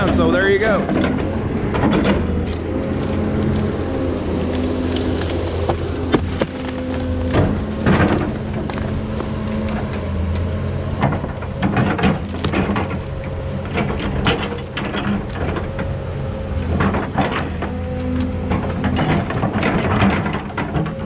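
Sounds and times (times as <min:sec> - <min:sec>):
machine knocks and clanks: 0:00.0 - 0:02.6, 0:07.2 - 0:10.0, 0:11.0 - 0:15.9, 0:18.4 - 0:21.0
excavator diesel engine running: 0:00.0 - 0:21.0.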